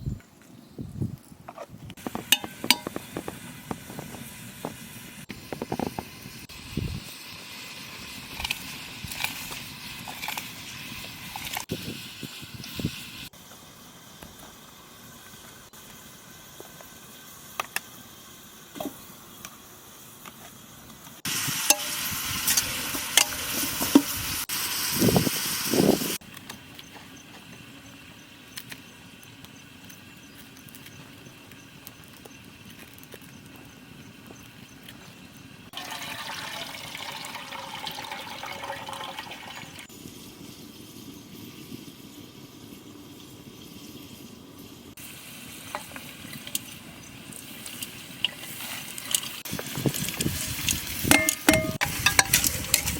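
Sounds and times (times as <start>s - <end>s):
liquid pouring into pot: 35.7s - 39.9s.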